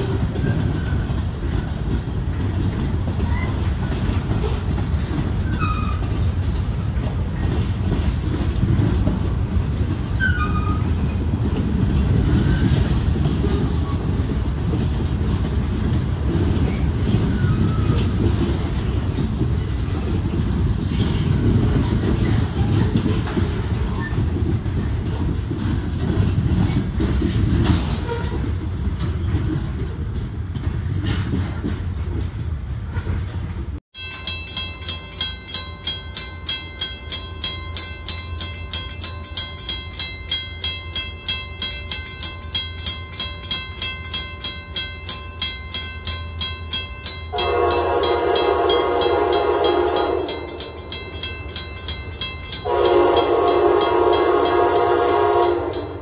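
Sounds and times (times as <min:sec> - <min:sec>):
freight train wheels rumbling: 0:00.0 - 0:56.0
train horn blast: 0:28.0 - 0:28.5, 0:47.3 - 0:50.6, 0:52.6 - 0:56.0.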